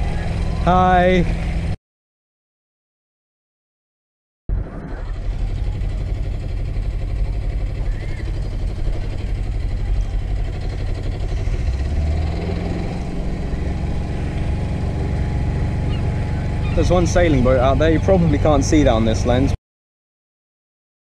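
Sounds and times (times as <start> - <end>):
diesel boat engine running: 0.0 - 1.8, 4.5 - 19.6.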